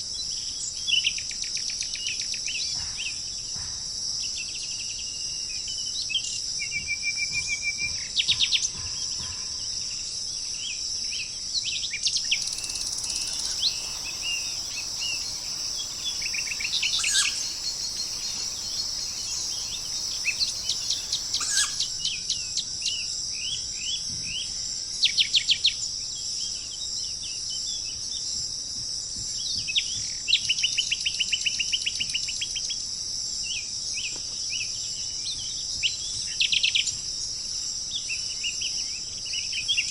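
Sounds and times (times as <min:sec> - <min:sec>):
high-pitched background buzz: 0:12.2 - 0:22.0
songbirds chirping and trilling: 0:12.2 - 0:22.0.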